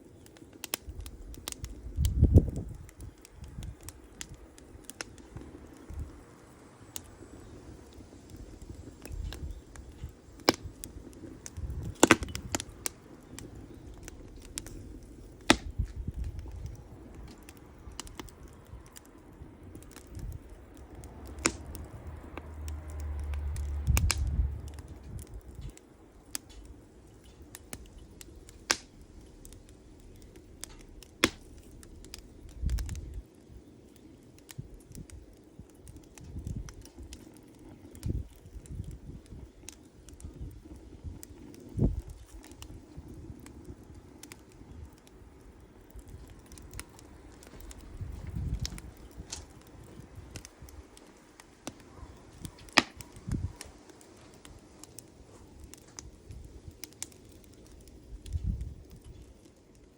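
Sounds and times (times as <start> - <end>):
campfire crackling: 0.0 - 59.9
low rumble: 19.8 - 25.8.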